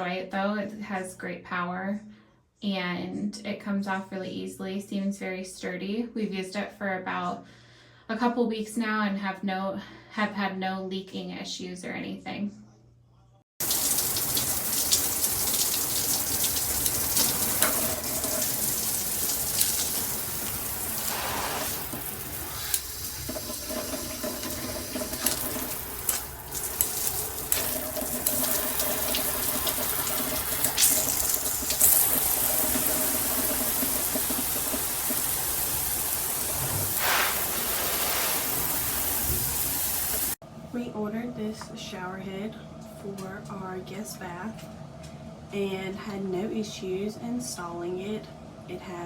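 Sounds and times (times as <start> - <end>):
water spraying from shower head: 13.6 - 40.4.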